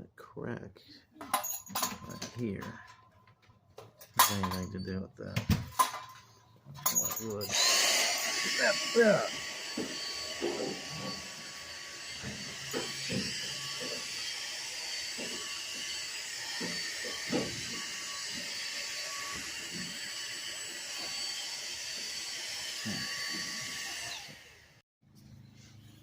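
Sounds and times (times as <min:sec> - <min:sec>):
vacuum cleaner motor whining: 0:06.9 - 0:24.8.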